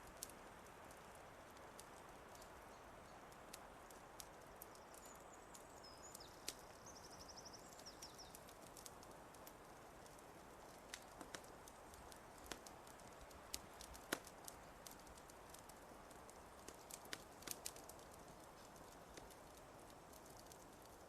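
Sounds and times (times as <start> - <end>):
fireplace crackle: 0.0 - 21.0
small bird singing: 4.6 - 8.9.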